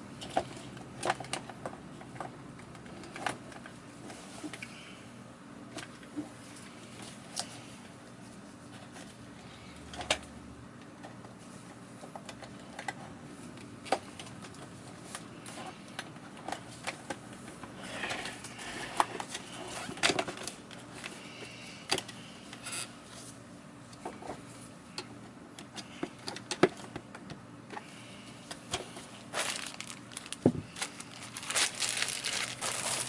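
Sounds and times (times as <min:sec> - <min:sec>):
plastic parts clicking and knocking: 0:00.2 - 0:03.8, 0:25.0 - 0:27.8
scraping and rustling: 0:28.8 - 0:33.0.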